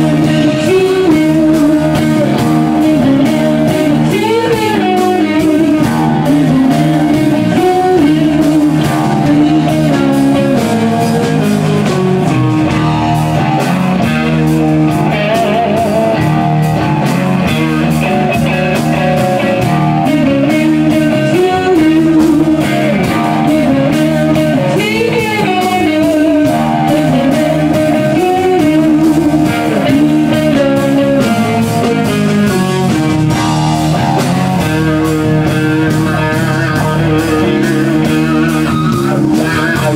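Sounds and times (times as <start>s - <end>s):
electric guitar blues-rock line: 0.0s - 39.9s.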